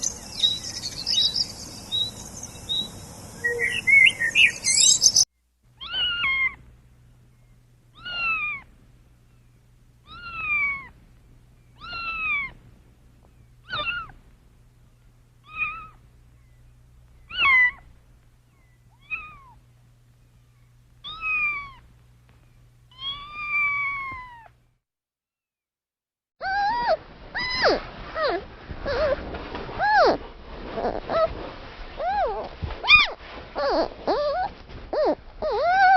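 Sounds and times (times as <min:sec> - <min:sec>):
animal call: 0:00.0 - 0:05.2, 0:17.3 - 0:17.9, 0:32.0 - 0:35.9
cat meowing: 0:05.8 - 0:06.6, 0:08.0 - 0:08.6, 0:10.0 - 0:10.9, 0:11.8 - 0:12.6, 0:13.6 - 0:14.2, 0:15.4 - 0:16.0, 0:19.0 - 0:19.6, 0:21.0 - 0:21.8, 0:22.9 - 0:24.5.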